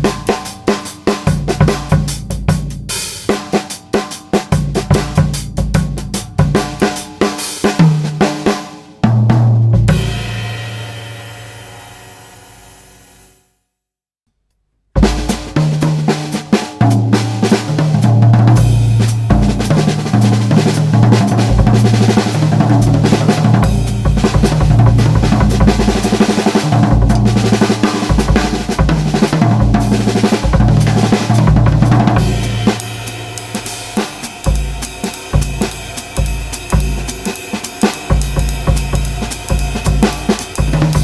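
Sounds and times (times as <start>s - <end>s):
drum kit groove: 0.0s - 13.0s, 15.0s - 41.0s
snare rimshots: 30.2s - 41.0s.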